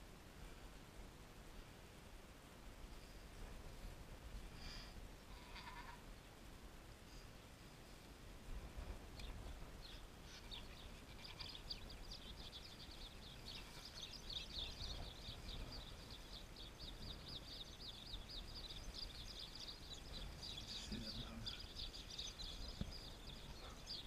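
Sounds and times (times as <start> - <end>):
small bird chirping: 5.3 - 6.0, 9.2 - 24.0.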